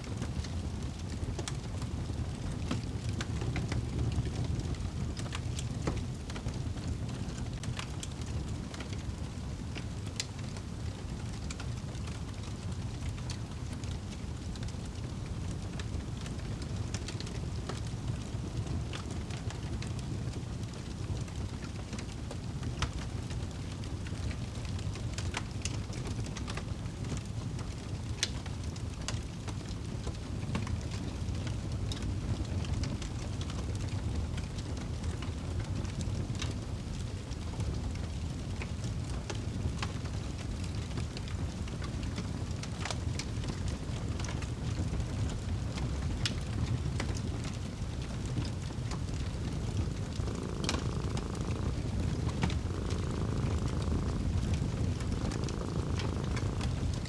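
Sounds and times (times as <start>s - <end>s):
wood fire crackling: 0.2s - 57.0s
steady low rumble: 48.1s - 57.0s.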